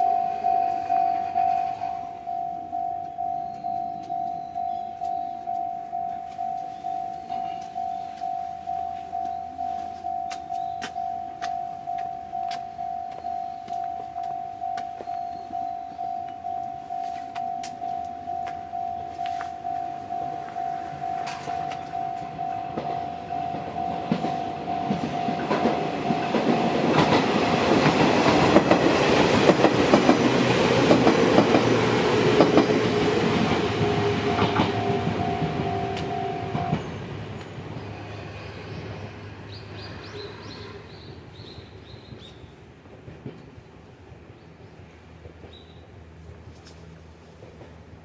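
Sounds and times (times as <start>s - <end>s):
level-crossing warning bell: 0.0s - 38.6s
electric train passing: 0.0s - 48.0s
wheels clacking over rail joints: 9.2s - 37.9s.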